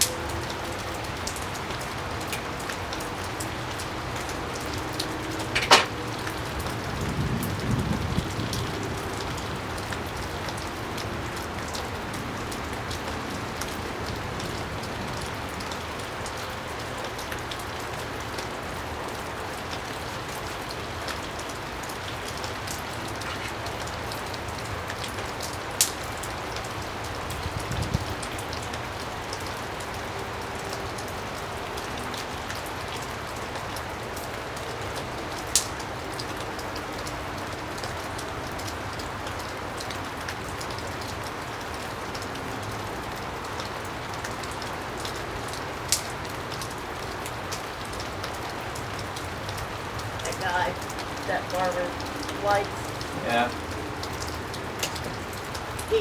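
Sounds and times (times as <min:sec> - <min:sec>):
rain falling: 0:00.0 - 0:56.0
sharp knocks and clicks: 0:05.4 - 0:06.0.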